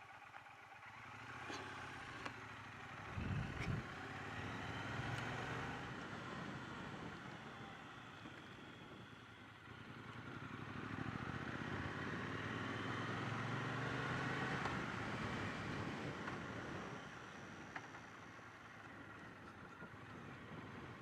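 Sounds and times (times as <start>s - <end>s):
motorcycle engine running: 0.0s - 13.7s
road noise: 0.0s - 21.0s
wind noise: 3.1s - 3.8s.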